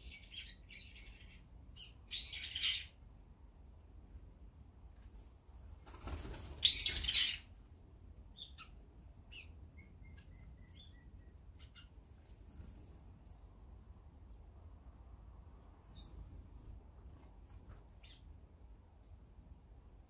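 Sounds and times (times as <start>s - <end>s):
small birds chirping: 0.0s - 3.0s, 5.8s - 7.5s, 8.2s - 14.5s, 15.6s - 16.4s, 17.1s - 19.3s
bird wings flapping: 5.0s - 7.0s.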